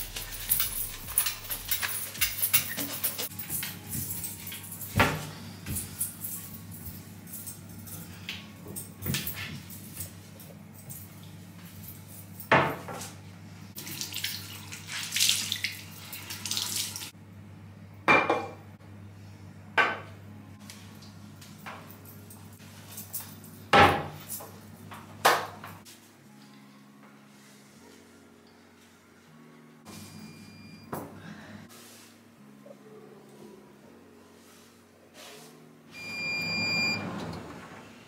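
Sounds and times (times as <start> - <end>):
tap water running: 13.8 - 17.1.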